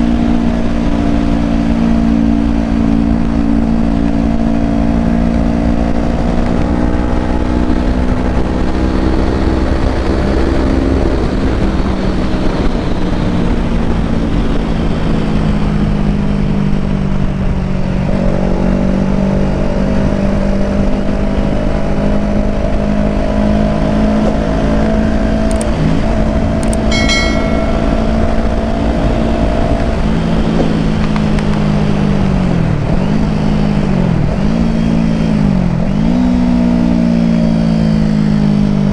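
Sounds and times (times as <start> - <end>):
motorcycle engine running: 0.0 - 38.9
wind rumble on microphone: 0.0 - 38.9
high-pitched tone: 26.8 - 29.3.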